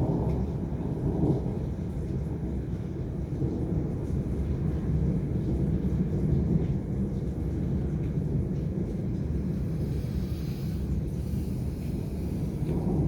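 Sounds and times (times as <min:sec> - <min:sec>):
wind buffeting microphone: 0:07.8 - 0:13.0.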